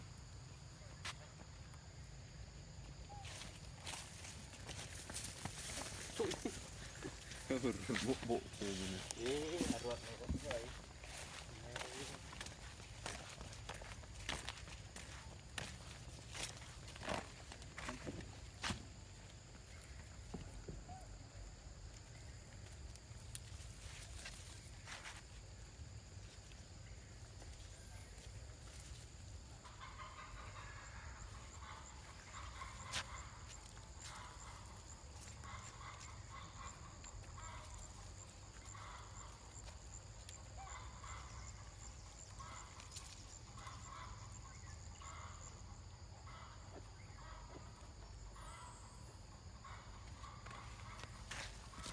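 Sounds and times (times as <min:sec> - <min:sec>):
faint animal calls: 0:03.0 - 0:18.8, 0:27.5 - 0:51.9.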